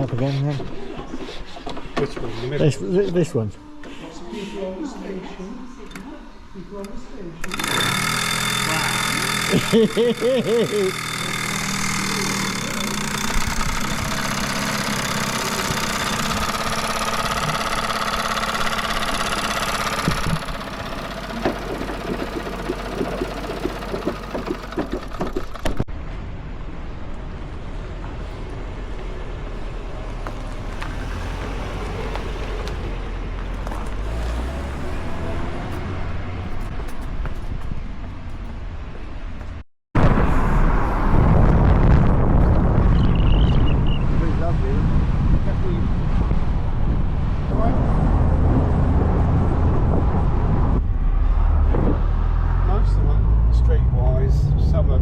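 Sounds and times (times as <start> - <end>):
old vehicle engine running: 7.4 - 25.9
engine popping and knocking: 7.5 - 25.9
low rumble of moving car: 20.2 - 55.0.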